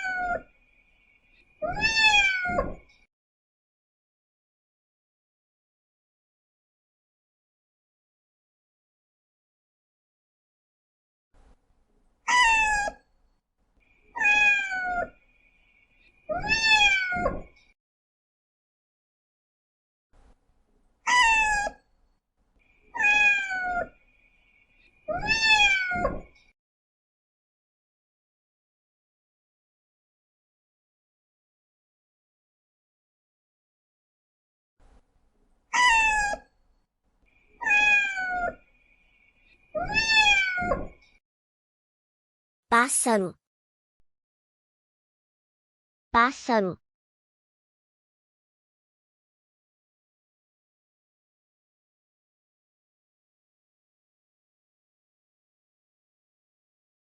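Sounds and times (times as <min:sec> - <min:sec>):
cat meowing: 0:00.0 - 0:00.5, 0:01.6 - 0:02.8, 0:12.3 - 0:13.0, 0:14.2 - 0:15.1, 0:16.3 - 0:17.5, 0:21.1 - 0:21.8, 0:23.0 - 0:23.9, 0:25.1 - 0:26.3, 0:35.8 - 0:36.5, 0:37.6 - 0:38.6, 0:39.8 - 0:41.0.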